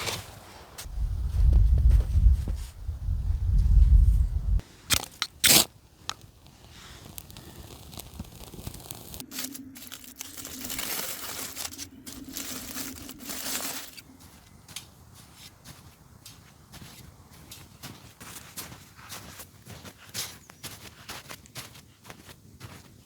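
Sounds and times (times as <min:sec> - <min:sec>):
snow crunching: 0:00.0 - 0:23.0
snow scraping: 0:00.0 - 0:23.0
low rumble: 0:00.9 - 0:04.6.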